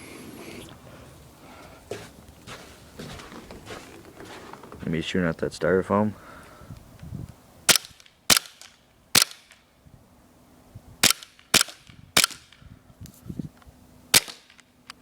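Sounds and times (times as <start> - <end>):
airsoft pistol shots: 7.7 - 9.5, 11.0 - 12.5, 14.1 - 14.6.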